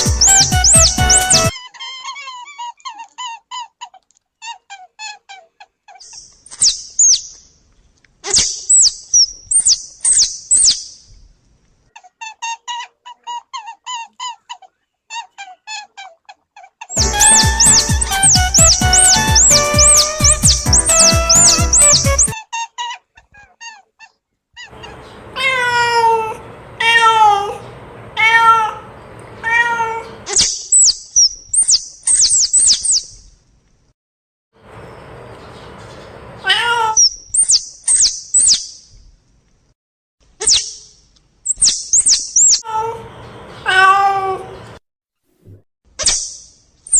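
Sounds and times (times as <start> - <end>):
sharp high chirps: 0.0 - 1.5, 17.0 - 22.4, 41.5 - 42.6
squeaky repeating tune: 0.0 - 1.5, 17.0 - 22.4
cat meowing: 0.0 - 2.4, 17.0 - 22.4, 24.6 - 27.6, 28.2 - 30.3, 36.4 - 37.1, 43.6 - 44.6.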